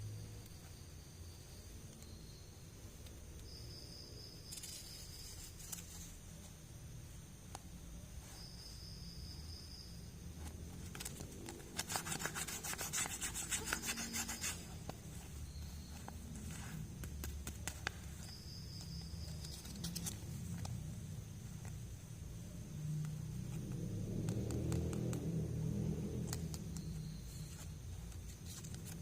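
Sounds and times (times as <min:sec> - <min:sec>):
toy packaging rubbing and scratching: 0:10.8 - 0:15.3, 0:19.2 - 0:20.4.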